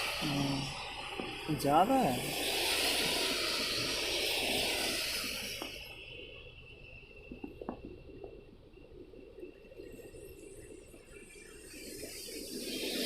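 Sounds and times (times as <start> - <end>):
tyres hissing on wet road: 0.0 - 6.2, 11.7 - 13.0
low traffic rumble: 0.0 - 9.0.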